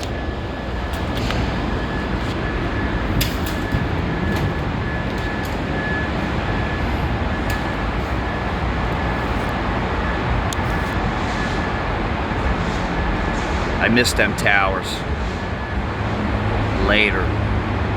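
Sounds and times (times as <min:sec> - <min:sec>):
scattered clicks: 0:00.0 - 0:09.6
faint high whine: 0:00.0 - 0:16.0
machinery drone with low rumble: 0:00.0 - 0:17.9.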